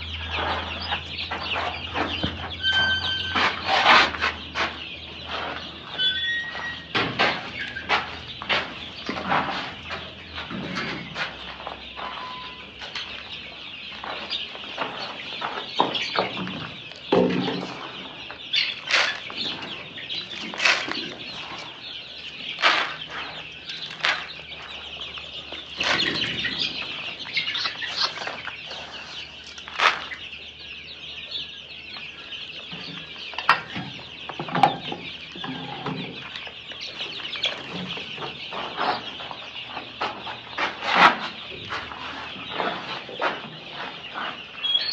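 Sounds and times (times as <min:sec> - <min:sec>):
chickens clucking: 0:00.0 - 0:44.9
chicks peeping: 0:00.0 - 0:44.9.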